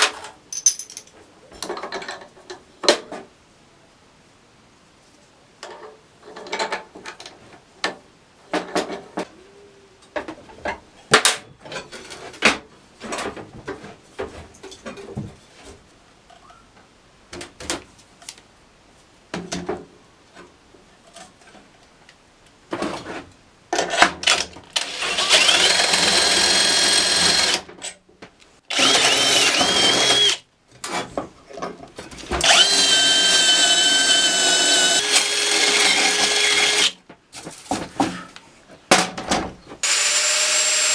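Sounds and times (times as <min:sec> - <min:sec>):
parts being handled: 0:00.0 - 0:02.2
power tool whining: 0:24.8 - 0:27.7, 0:28.7 - 0:30.4, 0:32.4 - 0:37.0, 0:39.8 - 0:40.9.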